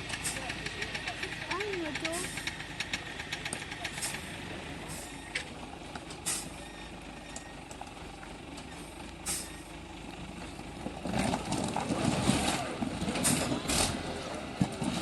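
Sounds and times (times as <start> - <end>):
truck engine running: 0.0 - 15.0
air brake hisses: 6.2 - 6.6, 9.2 - 9.6.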